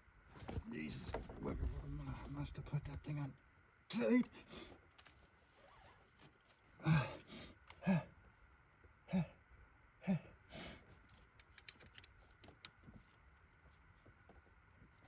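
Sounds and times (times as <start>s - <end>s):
man grunting with effort: 6.8s - 8.2s, 9.1s - 9.4s, 10.0s - 10.4s
faint clicks: 11.3s - 12.9s.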